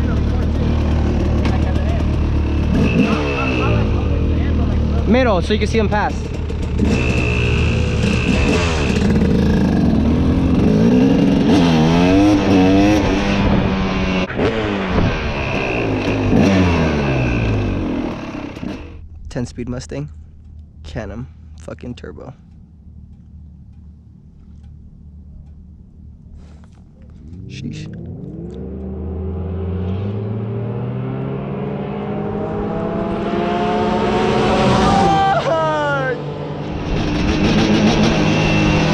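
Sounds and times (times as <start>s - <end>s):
engine revving: 0.0s - 19.1s, 21.0s - 38.9s
vehicle engines passing: 0.0s - 38.9s.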